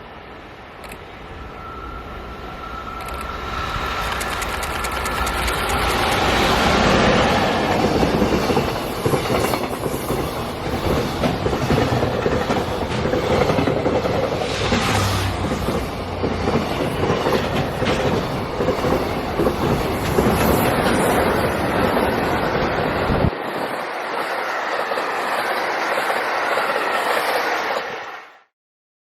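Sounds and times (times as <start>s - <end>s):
freight train rumble: 0.0s - 28.2s
wheels clacking over rail joints: 4.0s - 23.3s.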